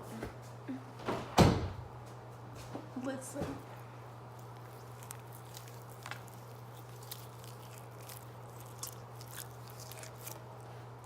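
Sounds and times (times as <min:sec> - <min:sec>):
steady low hum: 0:00.0 - 0:11.0
slime squishing sticky crackles: 0:03.8 - 0:10.7.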